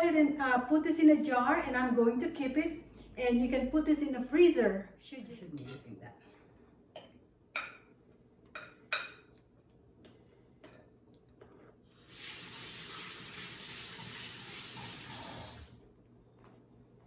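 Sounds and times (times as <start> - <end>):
kitchen tap running: 11.9 - 15.9.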